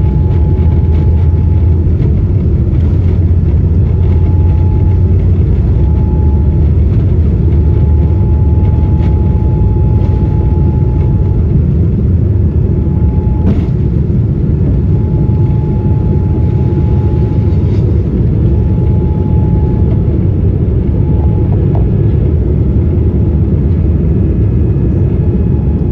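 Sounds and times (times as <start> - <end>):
faint whine: 0.0 - 25.9
jet cabin rumble: 0.0 - 25.9.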